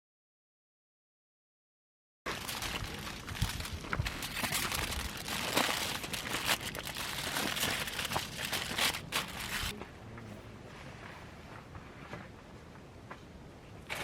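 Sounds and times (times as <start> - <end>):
paper or plastic crinkling: 2.3 - 9.7.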